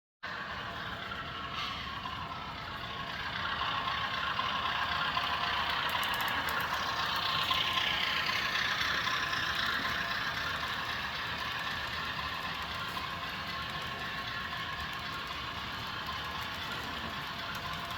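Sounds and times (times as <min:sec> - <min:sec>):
model train engine sound: 0:00.2 - 0:17.9.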